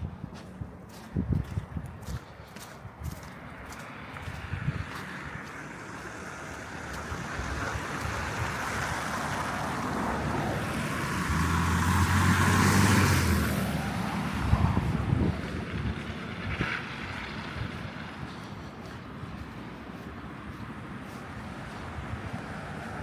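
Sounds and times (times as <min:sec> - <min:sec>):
car driving past: 0:03.7 - 0:18.6.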